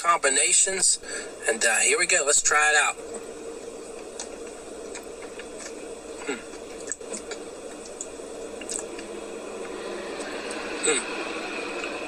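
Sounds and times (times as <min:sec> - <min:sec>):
steady hum: 0:00.0 - 0:12.0
chewing: 0:04.2 - 0:09.1.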